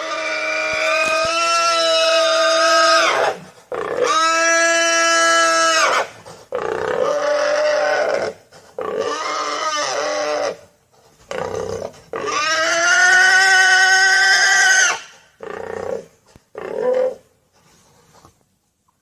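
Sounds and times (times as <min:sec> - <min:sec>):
pigs squealing: 0:00.0 - 0:10.6, 0:11.3 - 0:16.0.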